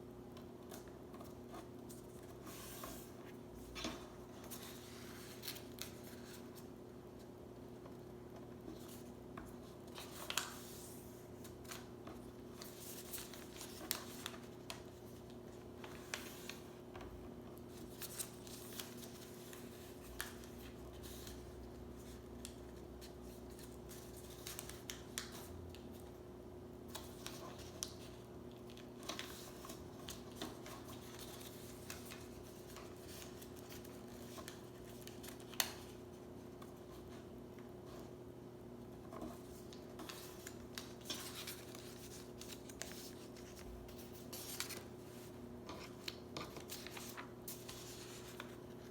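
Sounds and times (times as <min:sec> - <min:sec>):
paper rustling: 0:08.5 - 0:16.8, 0:17.6 - 0:25.9, 0:26.9 - 0:38.1, 0:39.0 - 0:48.9.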